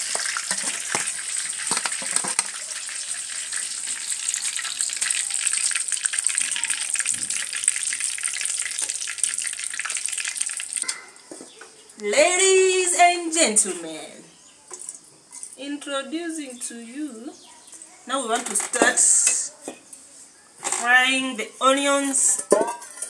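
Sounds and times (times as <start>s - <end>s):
chicken deep-frying in oil: 0.0s - 11.0s.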